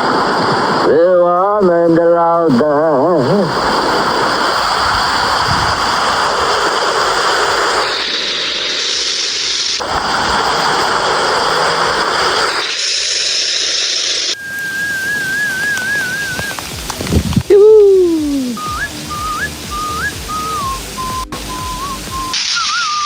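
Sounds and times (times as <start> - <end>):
heavy rain: 0.0 - 0.9, 3.1 - 23.0
strong wind: 0.0 - 1.0, 3.2 - 8.7, 14.4 - 21.9.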